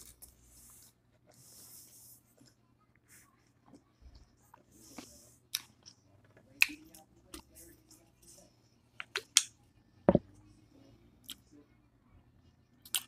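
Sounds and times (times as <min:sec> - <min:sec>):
person chewing food: 0:04.9 - 0:06.0.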